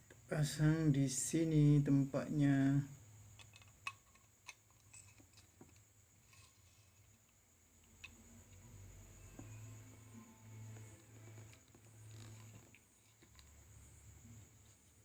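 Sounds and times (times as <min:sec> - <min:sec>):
small parts clicking into casing: 0:03.4 - 0:06.4.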